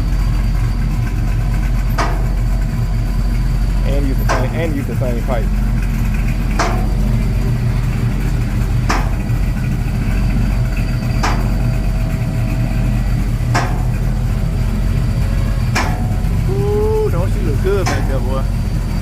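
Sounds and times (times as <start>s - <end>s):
engine idling with exhaust drone: 0.0s - 19.0s
sharp engine knock: 0.7s - 16.5s, 17.2s - 19.0s.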